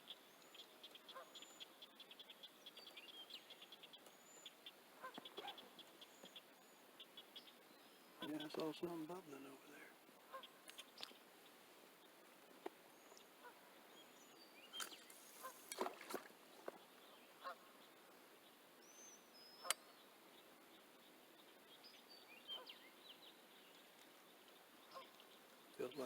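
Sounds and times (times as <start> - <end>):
honk-like bird calls: 10.3 - 10.6.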